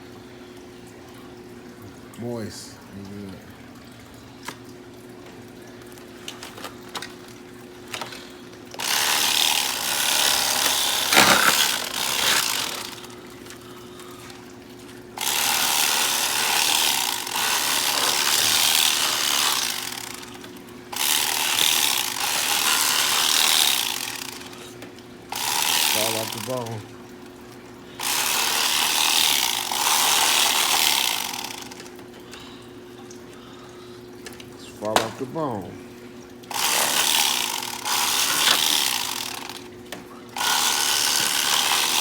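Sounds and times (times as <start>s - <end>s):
electric knife buzzing: 7.9s - 13.3s, 15.1s - 26.8s, 28.0s - 32.0s, 36.5s - 39.7s, 40.4s - 42.0s.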